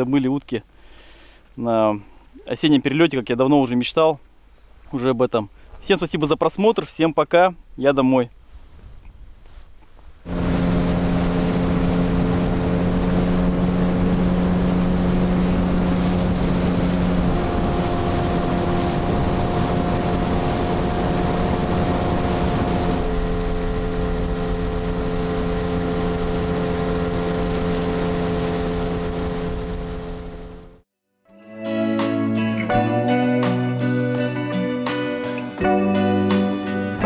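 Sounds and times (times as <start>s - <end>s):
outboard motor running: 10.3s - 30.8s.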